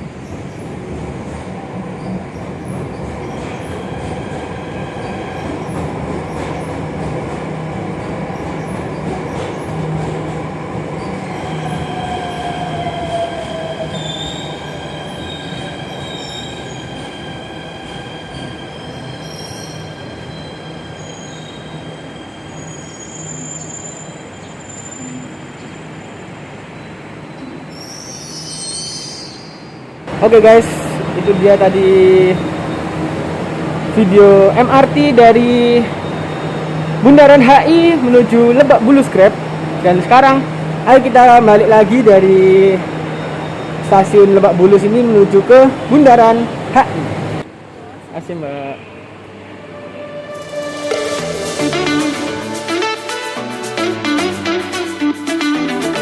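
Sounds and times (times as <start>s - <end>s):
electric train rumbling: 0.0s - 28.8s, 49.0s - 56.0s.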